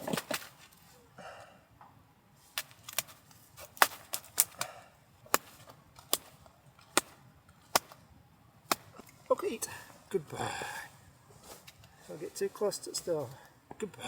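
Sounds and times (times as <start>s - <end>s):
wood fire popping and snapping: 2.6s - 8.0s.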